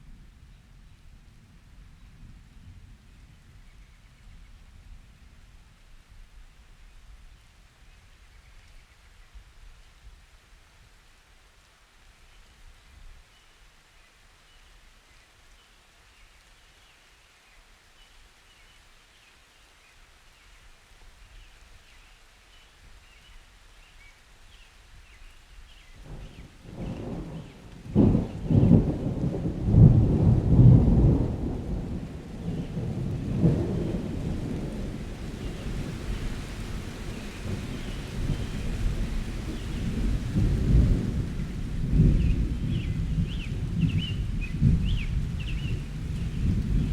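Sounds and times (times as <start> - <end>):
soft rain hiss: 0.0 - 46.9
thunder rumbling: 26.0 - 46.9.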